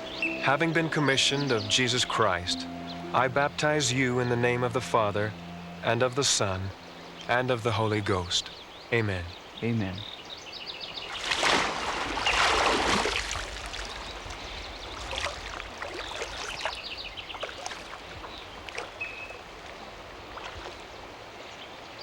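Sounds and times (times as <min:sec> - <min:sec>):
birds chirping: 0:00.0 - 0:22.0
water splashing and dripping: 0:11.0 - 0:21.1
loud water splash: 0:11.1 - 0:16.8.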